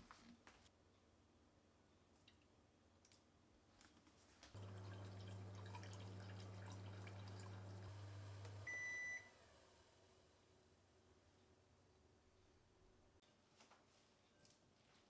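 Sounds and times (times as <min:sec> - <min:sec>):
kitchen appliance humming: 0:04.6 - 0:10.6.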